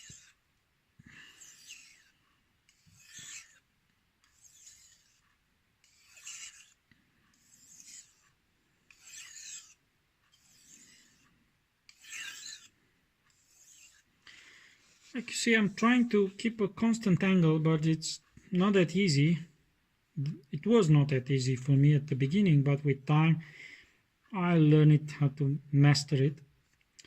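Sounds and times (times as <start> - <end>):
knife scraping on whetstone: 0.0 - 0.4, 1.2 - 14.1, 14.8 - 16.6.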